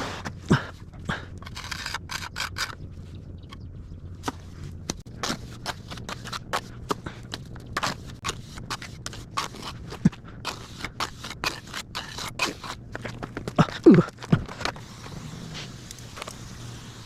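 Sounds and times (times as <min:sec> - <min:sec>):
trowel scraping wet mortar: 0:00.0 - 0:02.8, 0:05.2 - 0:16.6.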